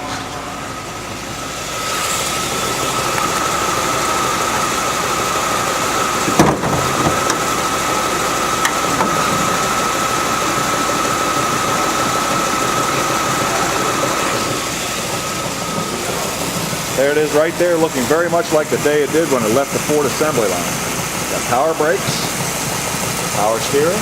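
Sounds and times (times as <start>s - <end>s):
car engine idling: 1.0s - 24.0s
sharp clunk: 6.3s - 7.5s.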